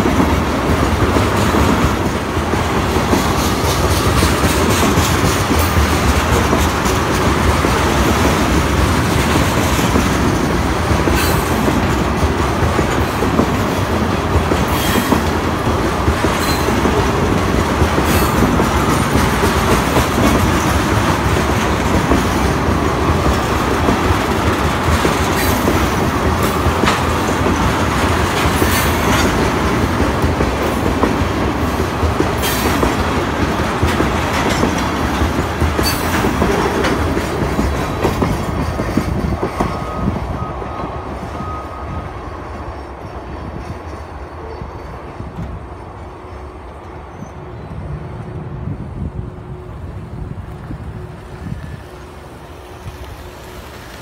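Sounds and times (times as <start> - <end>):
wheels clacking over rail joints: 0.0 - 41.0
train wheels rumbling on rail: 0.0 - 54.0.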